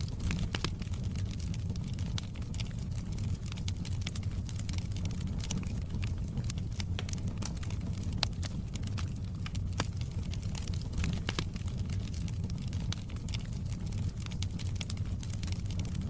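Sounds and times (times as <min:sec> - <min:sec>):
fire crackling and popping: 0:00.0 - 0:16.0
fire rumbling: 0:00.0 - 0:16.0.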